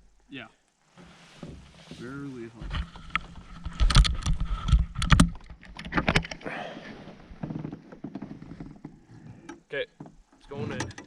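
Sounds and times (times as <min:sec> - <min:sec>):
gear knocking and rattling in canoe: 0:02.6 - 0:06.5, 0:07.1 - 0:11.0.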